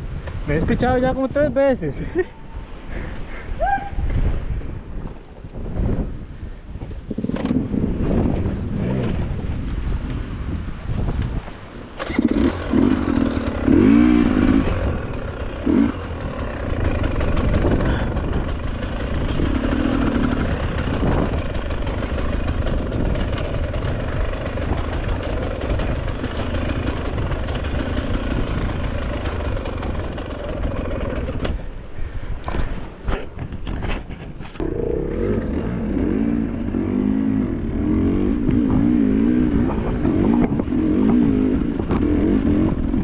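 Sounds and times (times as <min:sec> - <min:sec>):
dirt bike engine revving: 0:12.0 - 0:31.7, 0:34.6 - 0:43.0.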